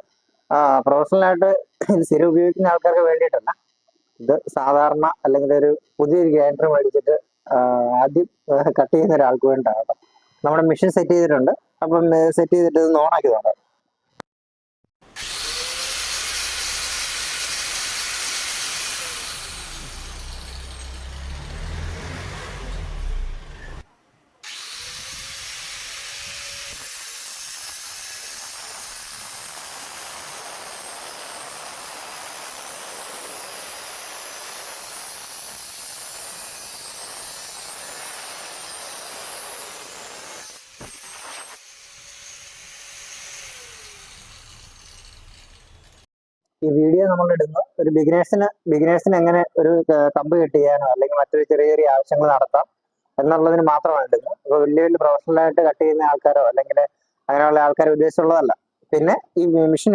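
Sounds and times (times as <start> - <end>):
angle grinder cutting iron: 15.0 - 46.1.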